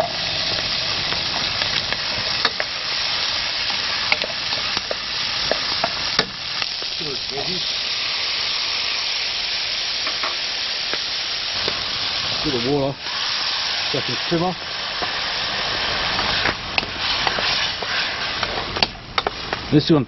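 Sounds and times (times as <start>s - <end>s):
vegetables sizzling in a pan: 0.0s - 19.9s
wooden spoon scraping a pan: 15.7s - 18.8s.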